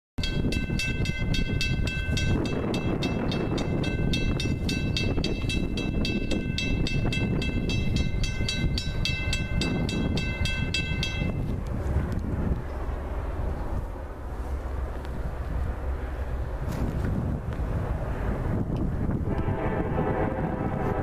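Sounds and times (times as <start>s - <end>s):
crossing bell ringing: 0.2s - 11.5s
train rumble: 0.2s - 21.0s.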